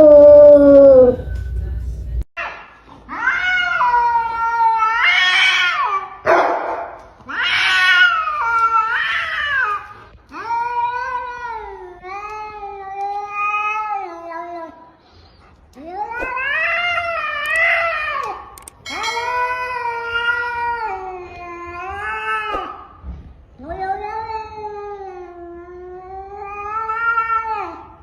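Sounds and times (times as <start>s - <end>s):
cat yowling: 0.0s - 1.2s, 2.4s - 6.2s, 7.3s - 9.8s, 19.2s - 22.9s, 23.6s - 28.0s.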